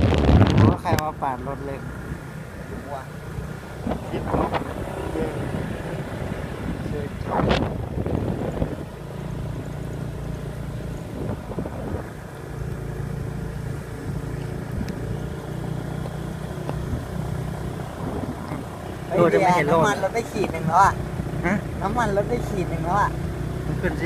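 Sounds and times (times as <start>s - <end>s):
wind noise on microphone: 0.0s - 1.1s, 3.8s - 12.5s, 14.0s - 15.9s, 17.8s - 18.8s
small motorbike engine running: 3.0s - 24.0s.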